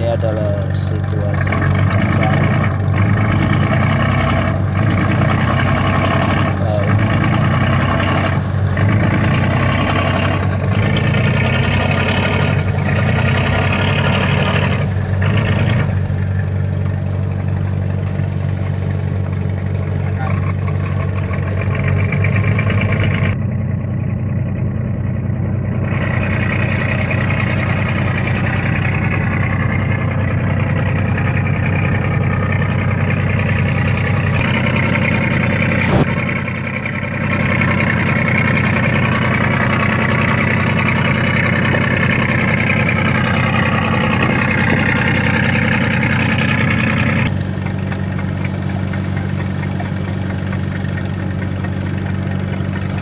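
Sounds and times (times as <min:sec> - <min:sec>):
boat engine running: 0:00.0 - 0:53.0.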